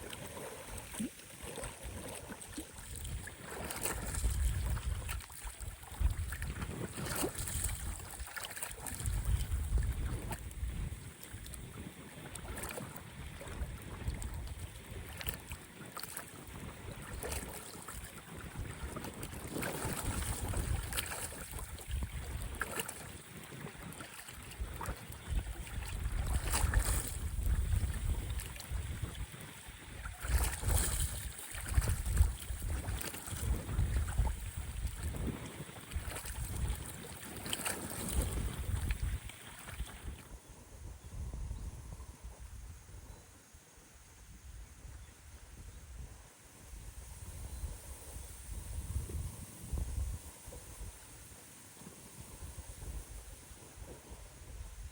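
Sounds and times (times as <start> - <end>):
lake water splashing on shore: 0.0 - 40.4
wind gusting over microphone: 2.8 - 14.6, 18.4 - 22.6, 24.5 - 43.2, 44.3 - 51.0.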